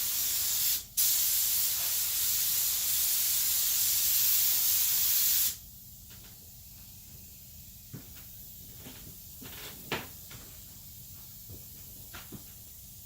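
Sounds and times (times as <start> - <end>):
spray gun hissing: 0.0 - 5.6.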